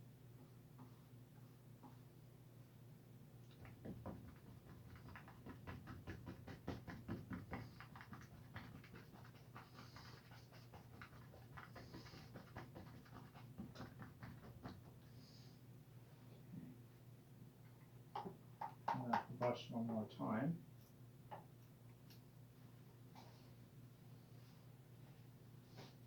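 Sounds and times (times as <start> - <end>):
paintbrush dabbing on canvas: 3.6 - 15.0.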